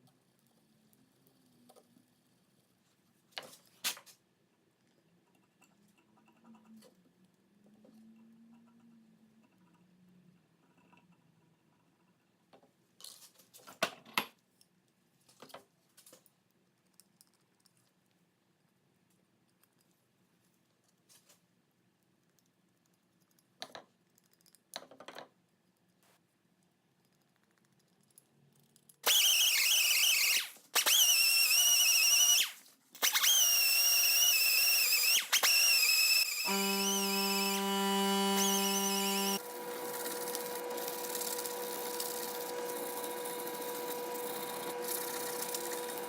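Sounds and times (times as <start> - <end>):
power tool whining: 29.0 - 46.0.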